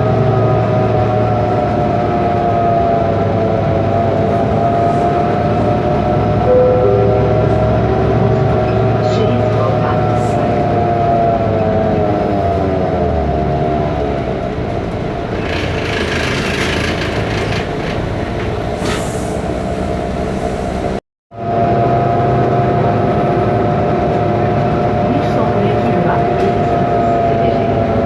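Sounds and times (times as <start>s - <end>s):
bus diesel engine running: 0.0s - 28.0s
high whine: 5.4s - 10.5s.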